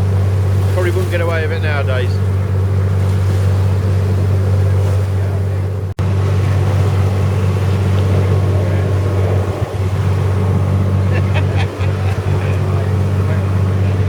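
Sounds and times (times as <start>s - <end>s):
boat engine droning: 0.0s - 14.0s
water noise: 0.0s - 14.0s
wind noise: 6.0s - 14.0s.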